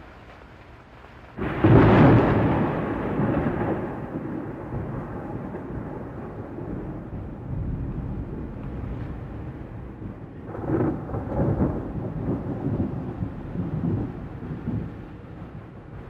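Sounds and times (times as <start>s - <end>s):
thunder crack and rumble: 1.2s - 16.0s.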